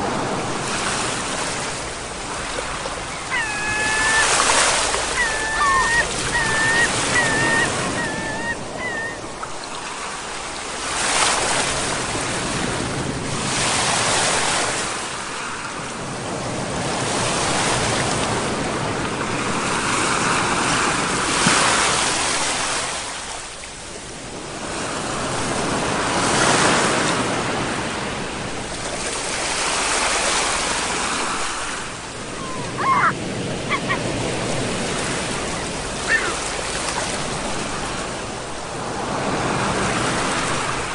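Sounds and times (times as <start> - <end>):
ocean waves breaking: 0.0 - 40.9
short wavering high calls: 3.0 - 9.7, 32.3 - 34.0, 35.6 - 36.4.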